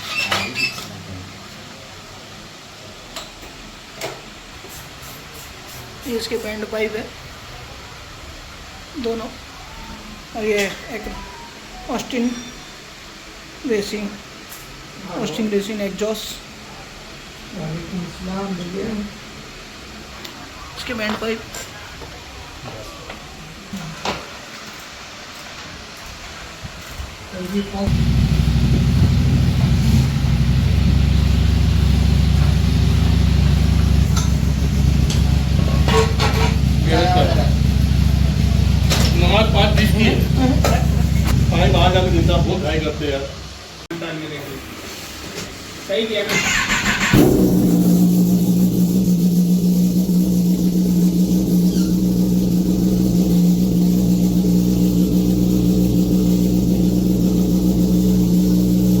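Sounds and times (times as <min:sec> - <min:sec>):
motorcycle engine idling: 0:27.9 - 0:43.4, 0:46.5 - 0:59.0.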